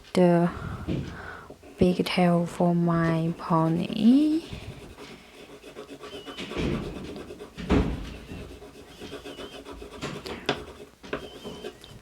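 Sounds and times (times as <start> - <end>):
pencil scratching on paper: 2.6 - 12.0.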